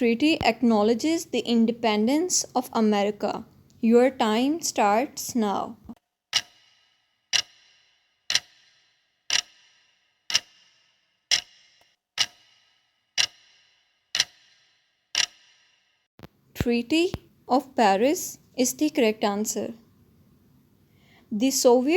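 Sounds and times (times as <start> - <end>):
countdown timer ticking: 6.3 - 15.6.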